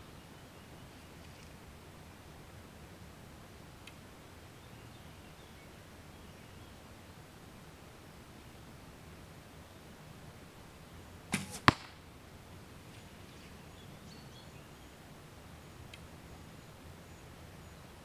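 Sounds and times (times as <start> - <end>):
bow releasing arrow: 11.3 - 12.0
arrow striking foam target: 11.3 - 12.1.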